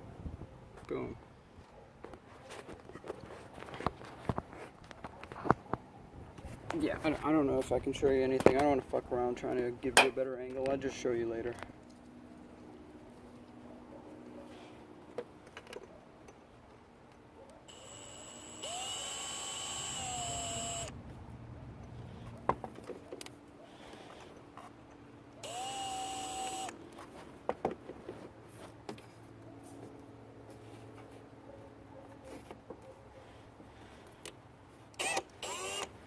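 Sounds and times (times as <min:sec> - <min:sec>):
power drill whining: 0:17.7 - 0:20.9, 0:25.4 - 0:26.8, 0:35.0 - 0:36.0.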